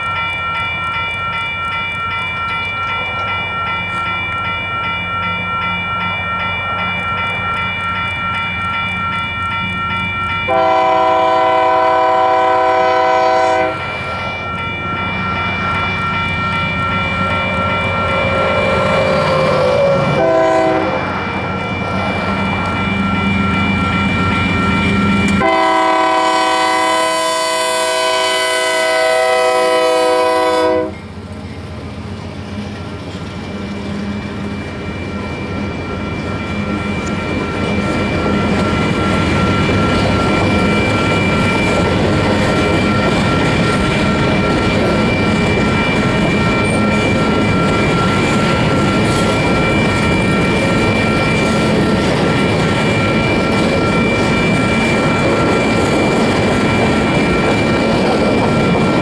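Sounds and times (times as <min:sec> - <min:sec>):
crossing bell ringing: 0:00.0 - 0:59.0
diesel locomotive passing: 0:00.0 - 0:59.0
train wheels clattering on rail: 0:06.8 - 0:27.4, 0:29.0 - 0:59.0
locomotive air horn chord: 0:10.5 - 0:13.8, 0:19.7 - 0:21.0, 0:25.4 - 0:31.0.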